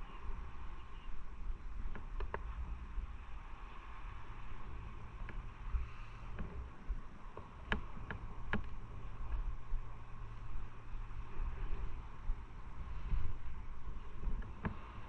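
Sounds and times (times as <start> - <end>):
road noise: 0.0 - 15.0
wind rumble on microphone: 0.0 - 15.0.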